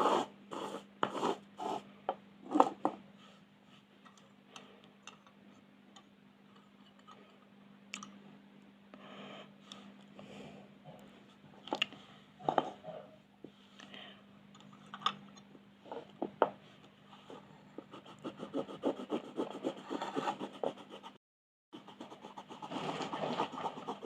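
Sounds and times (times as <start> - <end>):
drawing tool colouring on paper: 17.7 - 21.2, 21.8 - 24.0.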